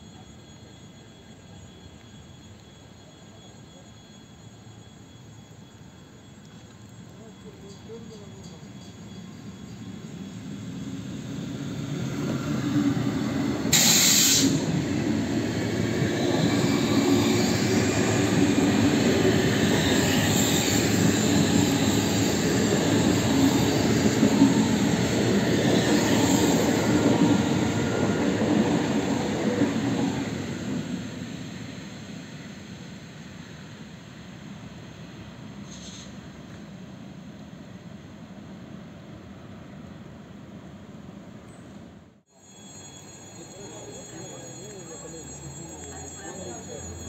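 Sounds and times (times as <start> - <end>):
train wheel and rail noise: 0.0 - 47.0
high hiss burst: 13.7 - 14.7.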